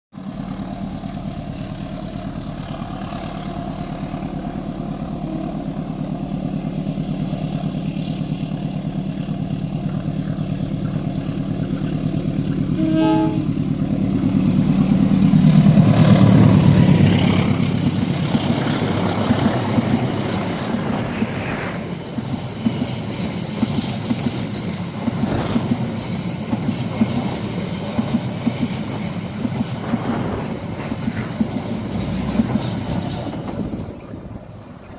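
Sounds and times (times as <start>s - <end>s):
diesel locomotive engine drone: 0.2s - 34.9s
wheels clattering over rail joints: 0.3s - 34.9s
wheel squeal: 2.0s - 34.9s
train horn blast: 12.7s - 16.6s.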